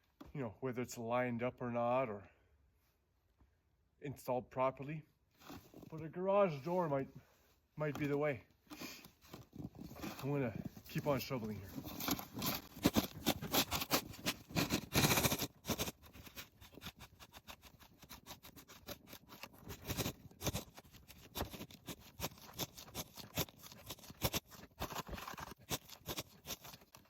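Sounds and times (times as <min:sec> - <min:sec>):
shovel scraping and digging: 0:08.7 - 0:27.0.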